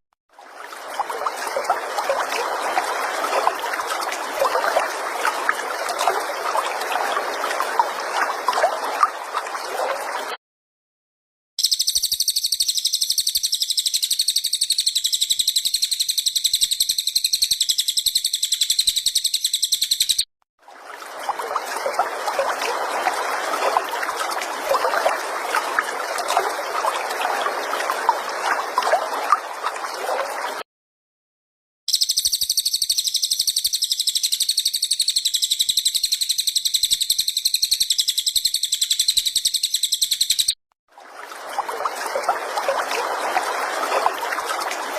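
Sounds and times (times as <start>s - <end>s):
high pulsing bird trill: 11.6s - 20.2s.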